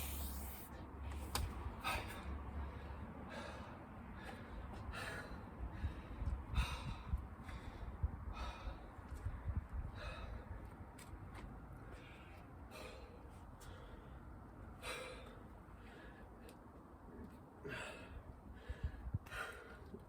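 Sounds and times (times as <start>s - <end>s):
steady low rumble: 0.0s - 11.0s
man breathing hard: 1.8s - 10.7s, 11.9s - 16.8s, 17.6s - 20.0s.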